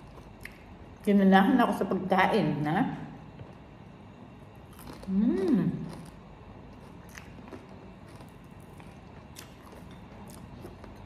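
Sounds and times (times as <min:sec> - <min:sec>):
chewing crispy food: 0:04.5 - 0:11.0
woman humming: 0:05.1 - 0:05.9.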